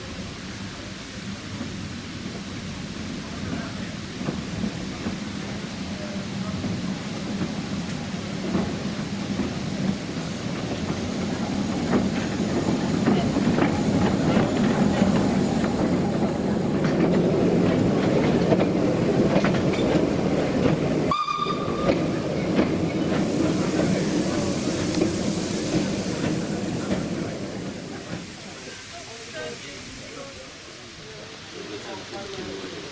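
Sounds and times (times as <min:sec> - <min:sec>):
steam train rumble: 0:00.0 - 0:32.9
wheels clicking over rail joints: 0:06.5 - 0:21.1.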